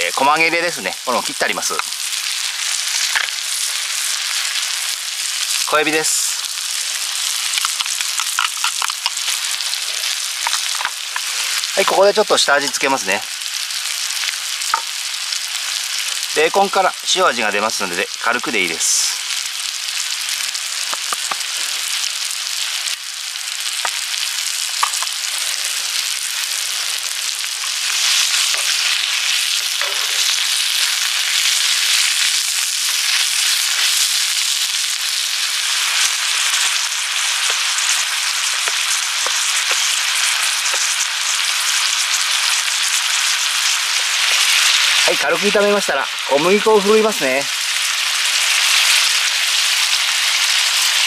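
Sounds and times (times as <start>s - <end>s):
food sizzling in a skillet: 0.0s - 51.0s
wooden spatula clicking on pan: 7.6s - 9.2s.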